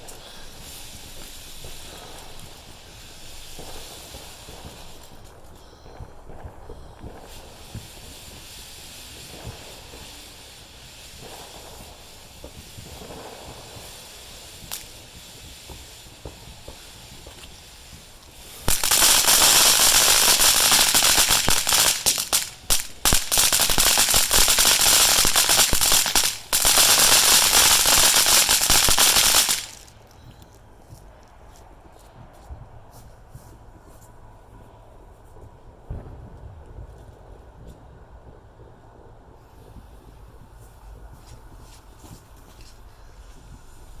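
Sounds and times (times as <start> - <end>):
firecrackers crackling: 0.0 - 31.6
faint background hiss: 0.0 - 44.0
scattered pops: 15.7 - 30.2.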